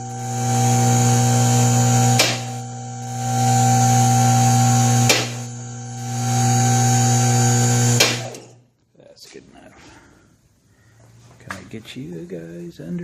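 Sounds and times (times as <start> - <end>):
lift pump motor humming: 0.0 - 8.6.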